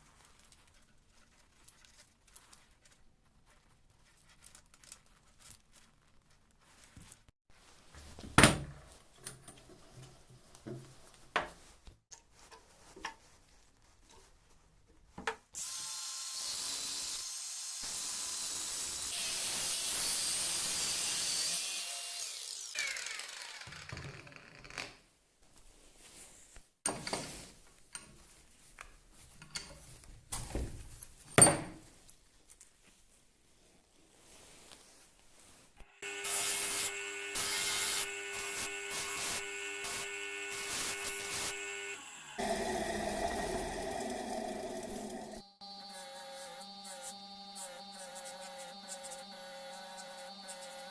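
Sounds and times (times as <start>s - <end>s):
power tool running: 15.6s - 24.0s, 36.0s - 50.9s.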